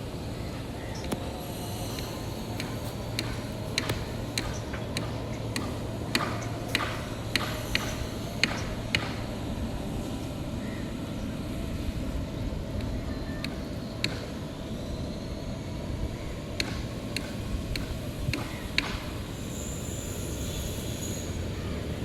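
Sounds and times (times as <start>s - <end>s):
steady low rumble: 0.0s - 19.4s
sharp irregular clicks: 2.0s - 9.3s.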